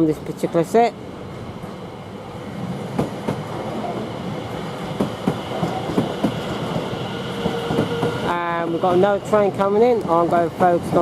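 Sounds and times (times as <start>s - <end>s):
electric train rumbling: 0.0s - 11.0s
train wheels clicking over joints: 2.9s - 8.3s.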